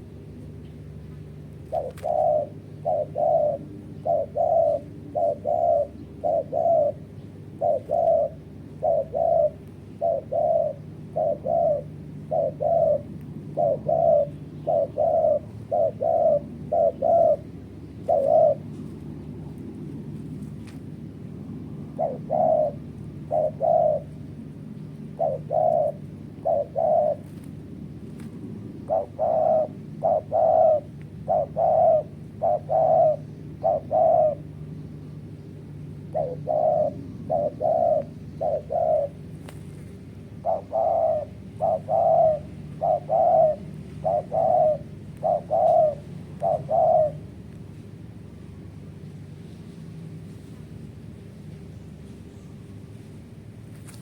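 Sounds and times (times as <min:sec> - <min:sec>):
dove cooing: 0:00.0 - 0:54.0
steady low hum: 0:00.0 - 0:54.0.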